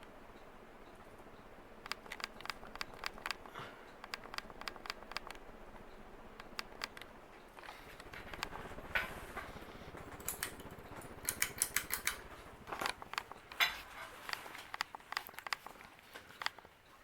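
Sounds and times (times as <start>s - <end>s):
ceiling fan humming: 0.0s - 17.0s
sharp irregular clicks: 0.0s - 17.0s.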